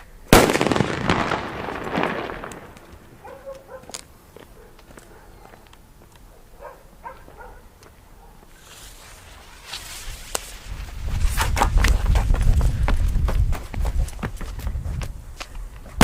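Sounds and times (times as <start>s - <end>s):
firecracker fuse hissing: 8.5s - 11.5s.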